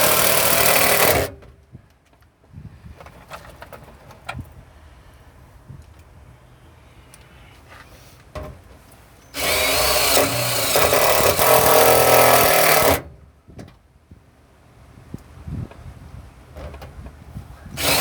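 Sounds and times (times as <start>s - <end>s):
power drill driving screw into metal: 0.0s - 1.4s, 9.3s - 13.1s, 17.8s - 18.0s.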